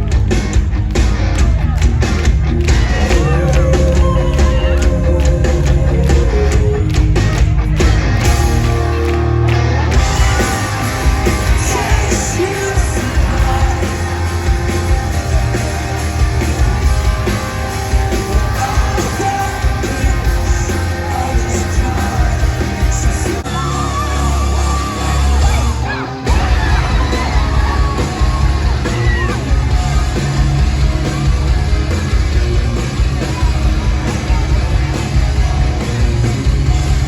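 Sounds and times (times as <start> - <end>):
live rock band playing: 0.0 - 37.0
person singing: 10.0 - 16.6, 17.8 - 29.4.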